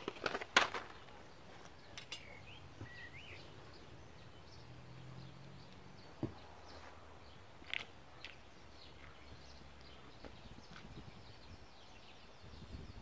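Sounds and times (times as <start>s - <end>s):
small bird chirps: 1.8s - 13.0s
bird whistling wavering notes: 2.2s - 3.5s.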